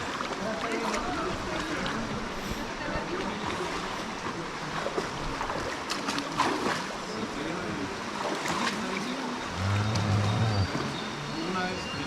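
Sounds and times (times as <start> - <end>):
river water rushing: 7.8 - 12.0.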